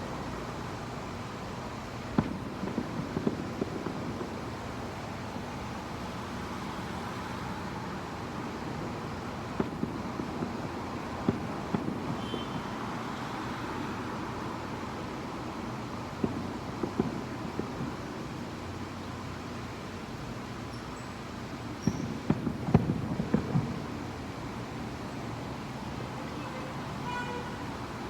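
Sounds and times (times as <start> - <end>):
distant fireworks popping: 1.3 - 27.9.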